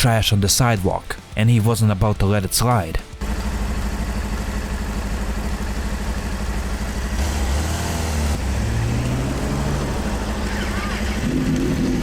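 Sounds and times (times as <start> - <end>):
motorcycle engine rumbling: 3.0 - 12.0
deeper louder engine note: 3.2 - 12.0.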